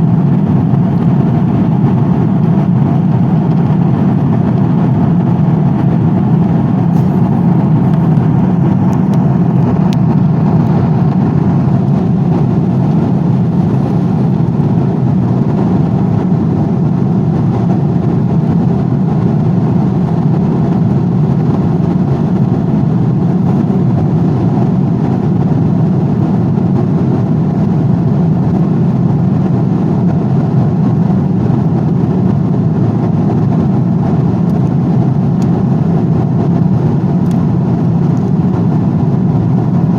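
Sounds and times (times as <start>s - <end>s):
aeroplane cabin drone: 0.0s - 39.9s.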